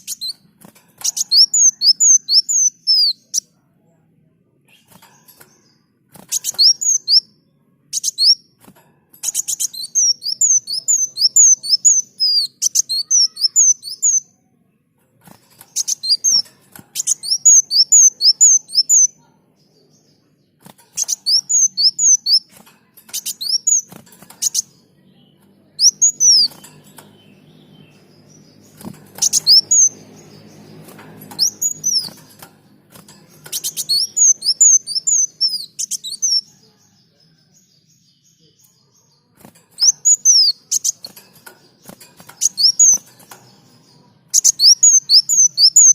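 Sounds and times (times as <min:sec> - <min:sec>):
bird singing high chirps: 0:00.0 - 0:03.6, 0:04.6 - 0:08.6, 0:09.2 - 0:14.6, 0:15.2 - 0:45.9.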